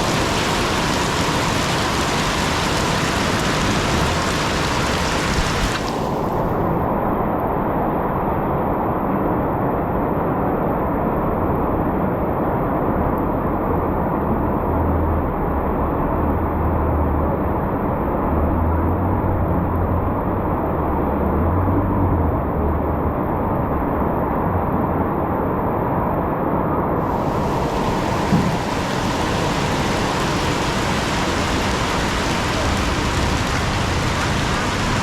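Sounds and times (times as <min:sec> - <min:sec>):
passing motor vehicle hum: 0:00.0 - 0:06.8, 0:27.0 - 0:35.0
heavy rain on street: 0:00.0 - 0:07.5, 0:27.0 - 0:35.0.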